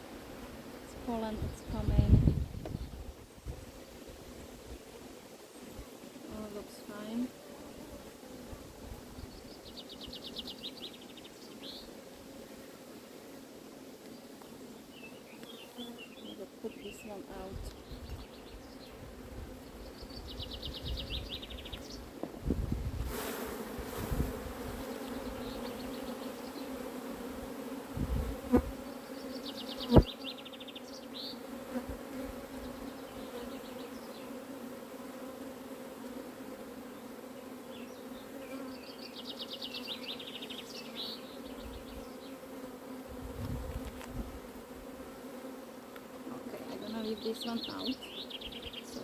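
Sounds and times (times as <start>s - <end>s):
honeybees buzzing: 0.0s - 49.0s.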